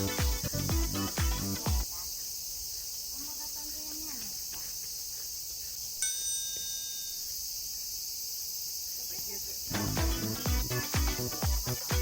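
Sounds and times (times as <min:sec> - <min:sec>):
music with a strong beat: 0:00.0 - 0:01.8, 0:09.7 - 0:12.0
crickets chirring: 0:00.0 - 0:12.0
bell-like chime: 0:06.0 - 0:07.2.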